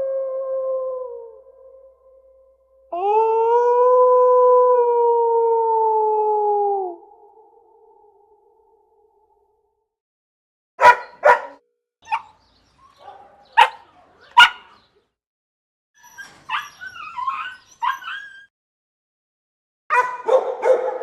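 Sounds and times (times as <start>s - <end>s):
dog barking: 10.8s - 14.8s, 19.9s - 21.0s
dog whining: 16.0s - 18.5s.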